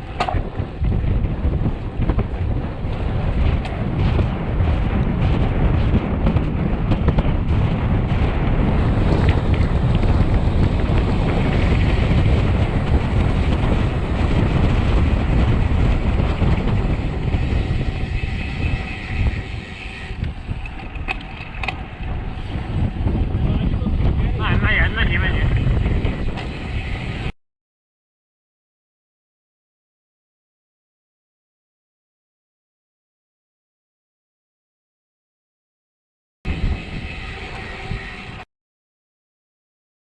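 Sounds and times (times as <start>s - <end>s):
bike clicks: 0.0s - 23.4s
wind rumbling on microphone: 0.0s - 27.4s, 36.5s - 38.4s.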